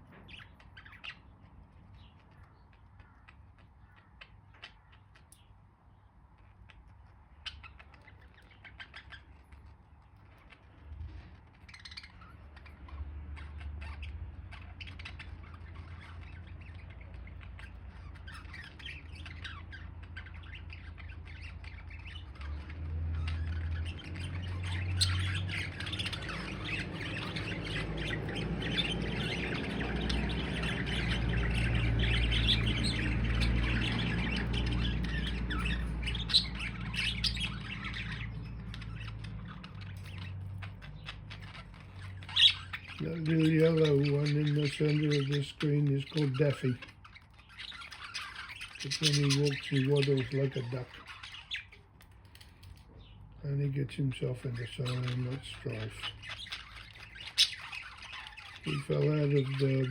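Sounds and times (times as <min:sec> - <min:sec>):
budgerigars chirping and squawking: 0:00.0 - 0:59.9.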